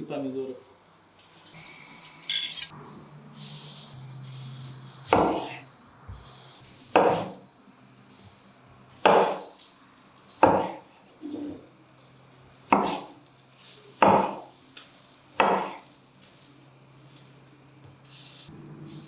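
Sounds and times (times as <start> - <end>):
knife chopping on wooden board: 5.1 - 6.2, 6.9 - 7.4, 9.0 - 9.5, 10.4 - 10.8, 12.7 - 13.2, 14.0 - 14.5, 15.4 - 15.8.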